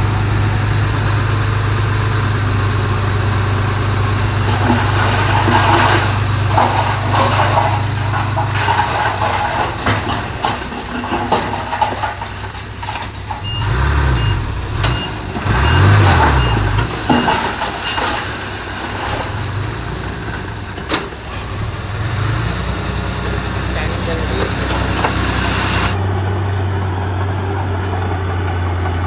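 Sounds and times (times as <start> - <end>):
diesel machinery engine revving: 0.0 - 29.0
back-up alarm beeping: 13.4 - 17.4.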